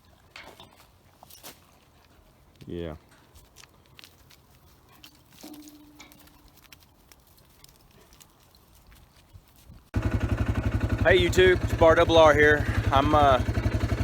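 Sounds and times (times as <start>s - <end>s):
faint ticks and rustles: 0.0s - 9.9s
vehicle engine running: 9.9s - 14.0s.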